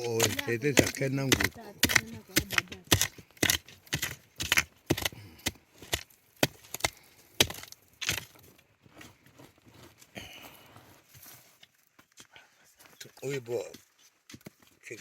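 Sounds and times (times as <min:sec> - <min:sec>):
hand tool striking: 0:00.0 - 0:08.3.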